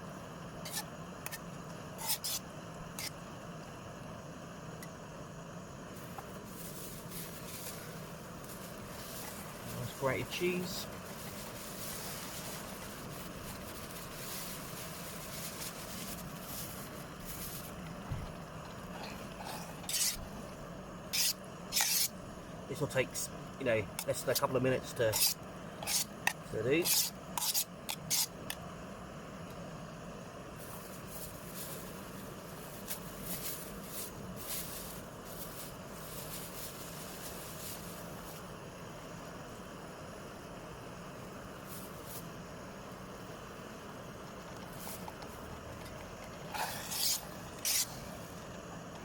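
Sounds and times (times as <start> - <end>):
stove burner flame roar: 0.0 - 49.0
short scratchy bursts: 19.4 - 20.3, 46.5 - 48.1
short sharp hiss: 21.1 - 22.2, 46.5 - 48.4.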